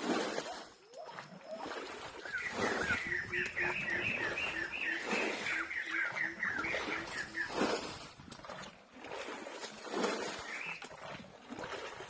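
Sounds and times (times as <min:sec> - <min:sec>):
bird chirping rapidly: 0:02.2 - 0:07.8.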